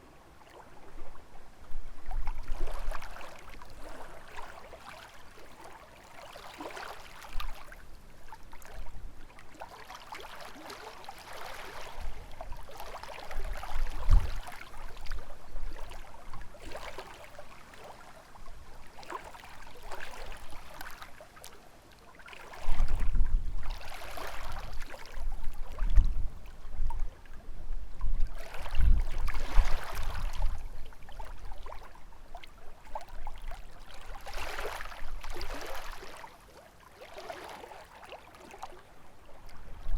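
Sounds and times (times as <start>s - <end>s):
waves lapping against shore: 0.0s - 39.9s
wind rumbling on microphone: 0.8s - 4.2s, 11.8s - 16.6s, 22.6s - 32.1s, 39.4s - 39.9s.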